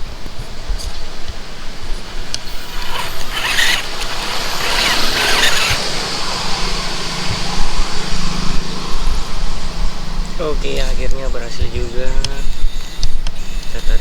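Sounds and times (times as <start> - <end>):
electric winch gear whir: 1.6 - 11.0, 12.2 - 14.0
low steady motor hum: 2.4 - 12.3.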